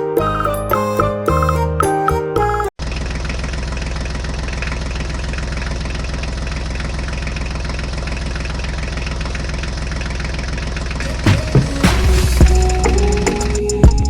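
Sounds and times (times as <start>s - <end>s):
tractor engine idling: 2.8s - 14.0s.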